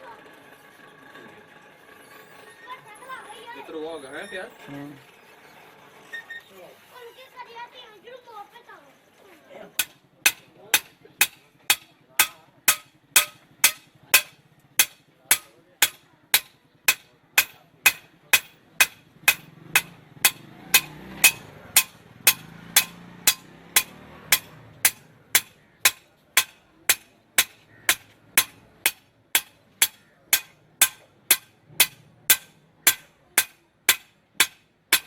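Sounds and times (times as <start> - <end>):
hammer striking metal on anvil: 9.8 - 35.0.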